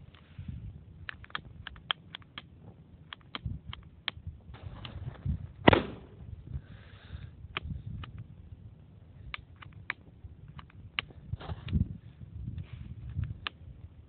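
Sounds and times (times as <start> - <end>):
small sharp clicks and taps: 1.0 - 2.5.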